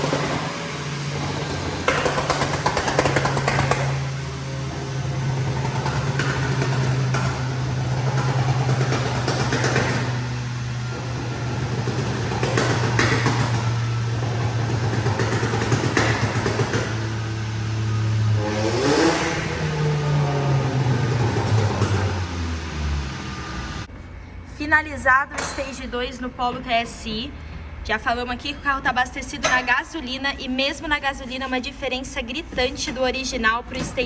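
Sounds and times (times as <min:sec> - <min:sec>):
car engine humming on dynamometer: 0:03.3 - 0:23.9.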